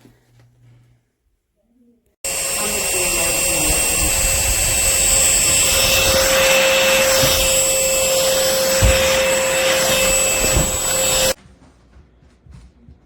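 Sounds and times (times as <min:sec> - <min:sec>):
stick vacuum whining: 0:02.2 - 0:11.4.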